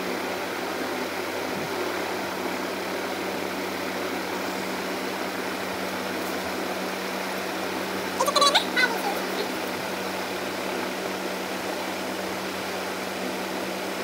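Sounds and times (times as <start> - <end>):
steady fan hum and hiss: 0.0 - 14.0.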